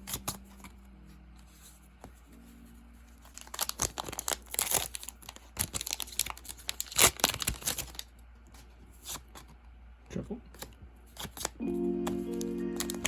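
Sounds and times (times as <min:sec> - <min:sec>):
foil pack tearing and crinkling: 0:03.3 - 0:08.1.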